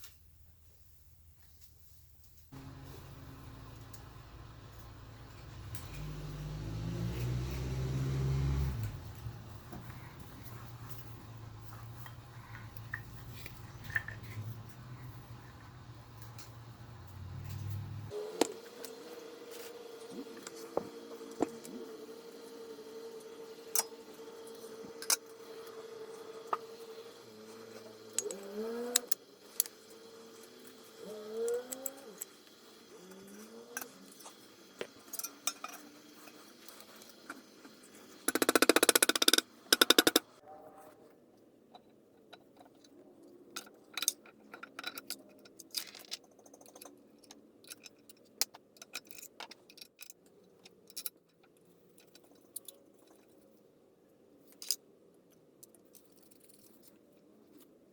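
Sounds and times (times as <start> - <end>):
loud buzz: 2.6 - 10.0
steady hum with rising whines: 2.6 - 35.0
small metal parts clicking: 8.8 - 19.7, 26.4 - 40.3, 41.7 - 53.5, 54.4 - 57.7.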